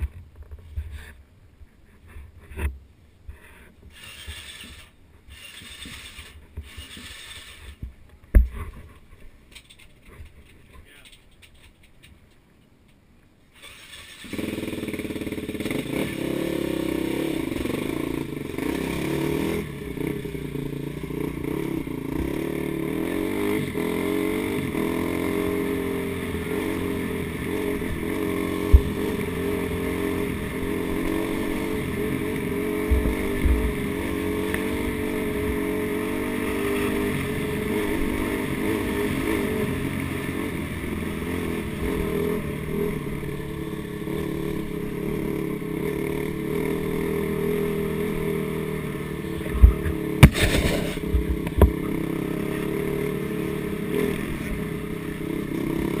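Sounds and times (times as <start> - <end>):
dirt bike engine revving: 3.9 - 7.8, 13.6 - 56.0
sharp thumps: 27.8 - 30.3, 32.3 - 34.7, 49.4 - 51.9.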